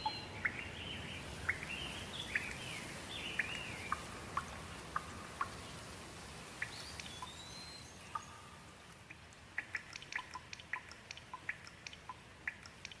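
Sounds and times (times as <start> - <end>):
soft hiss: 0.0 - 13.0
water drops plinking: 9.6 - 13.0.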